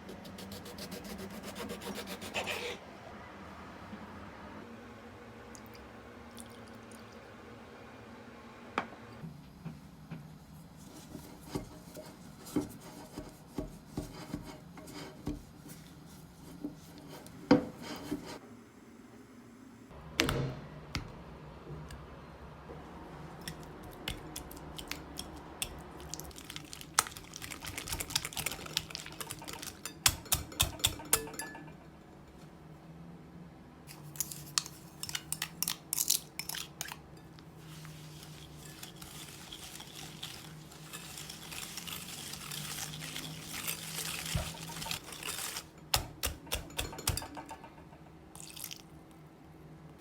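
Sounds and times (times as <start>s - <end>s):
utensils clinking against bowl: 27.4s - 31.9s, 34.0s - 48.7s.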